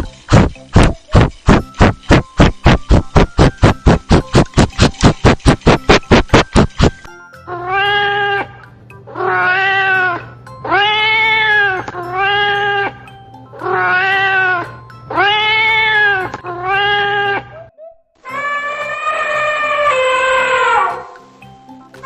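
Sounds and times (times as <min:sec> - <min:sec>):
cat meowing: 0:09.1 - 0:12.9, 0:13.6 - 0:17.6.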